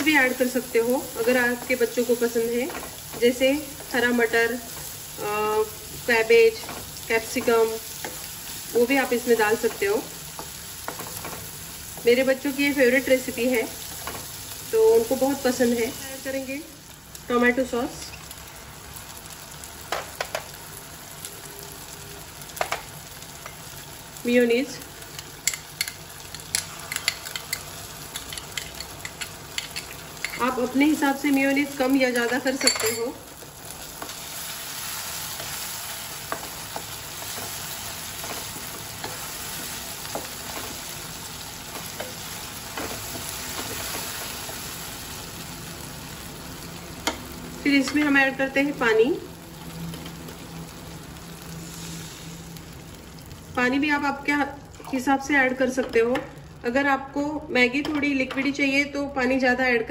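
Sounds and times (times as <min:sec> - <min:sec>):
vegetables sizzling in oil: 0:00.0 - 0:59.8
utensils clicking against pan: 0:25.1 - 0:30.6.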